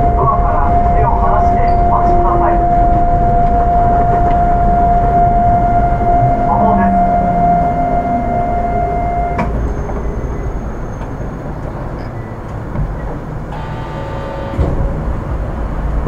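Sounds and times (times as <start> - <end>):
cluster of tones: 0.0 - 9.6, 13.5 - 15.0
steady tone: 0.0 - 9.7, 13.5 - 16.0
train rumbling along guideway: 0.0 - 16.0.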